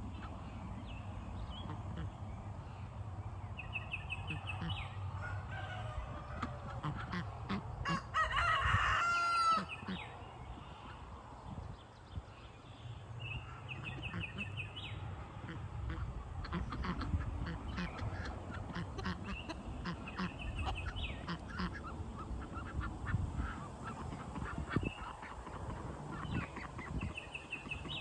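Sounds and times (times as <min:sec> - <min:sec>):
rooster crowing: 0:05.2 - 0:06.6, 0:07.8 - 0:09.7.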